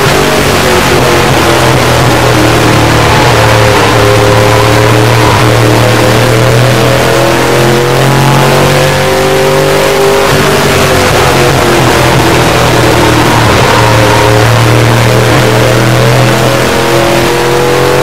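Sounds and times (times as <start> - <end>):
race truck engine at high revs: 0.0 - 18.0.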